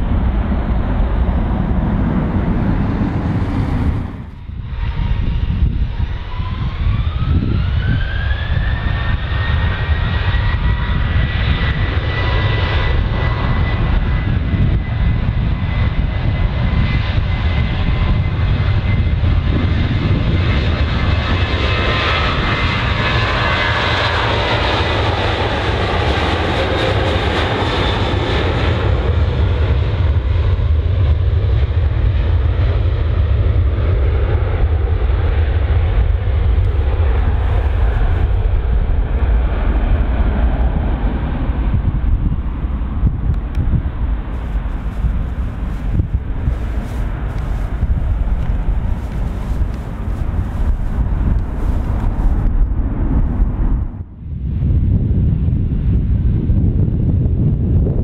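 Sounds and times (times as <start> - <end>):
jet engines spooling up: 0.0 - 14.3, 36.0 - 54.4
loud low rumble: 0.0 - 16.7, 36.1 - 58.0.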